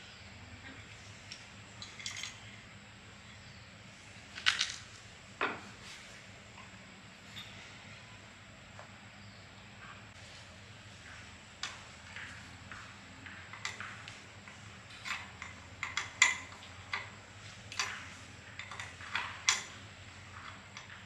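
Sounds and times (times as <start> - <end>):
metal parts and tools clinking: 1.8 - 2.6, 13.5 - 21.0.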